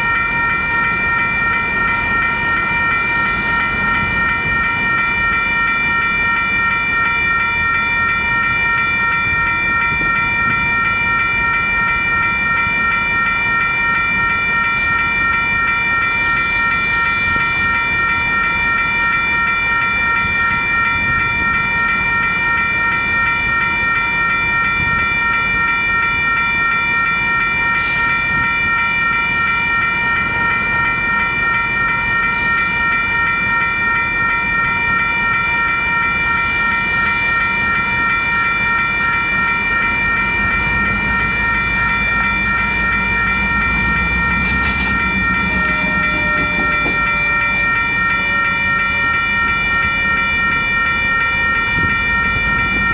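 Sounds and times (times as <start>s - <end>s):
high ringing tone: 0.0s - 52.9s
train rumbling past: 39.7s - 49.9s.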